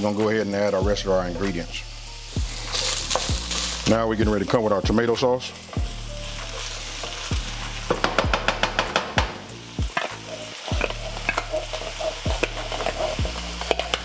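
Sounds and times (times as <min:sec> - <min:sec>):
food sizzling in a skillet: 0:00.0 - 0:14.0
wooden spoon scraping: 0:02.5 - 0:03.9, 0:10.0 - 0:14.0
low thumps: 0:07.4 - 0:10.0.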